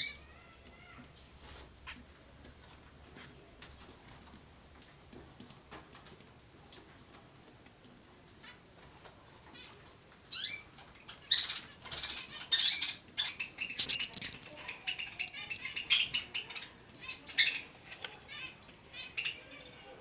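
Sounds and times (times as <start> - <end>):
finch chicks chirping: 0.0 - 1.2, 9.4 - 20.0.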